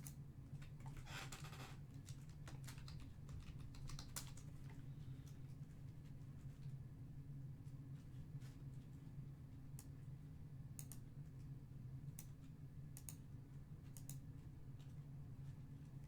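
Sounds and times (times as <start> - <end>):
keyboard and mouse clicks: 10.8 - 11.0.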